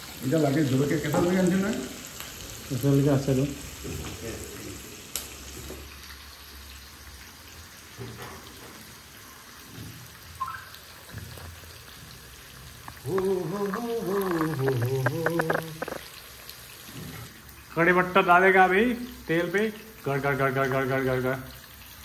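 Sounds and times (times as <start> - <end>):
onions sizzling in hot oil: 0.0 - 22.0
person speaking: 13.0 - 16.0.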